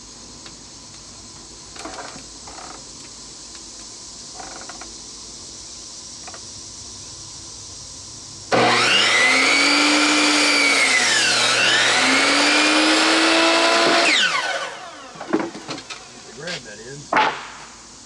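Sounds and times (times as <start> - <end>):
circular saw cutting wood: 8.5 - 16.8.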